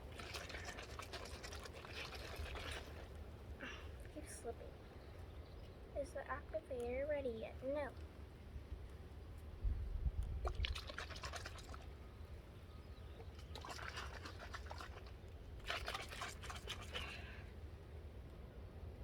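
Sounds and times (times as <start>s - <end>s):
water sloshing in shaken bottle: 0.0s - 3.3s, 10.3s - 12.0s, 13.0s - 17.4s.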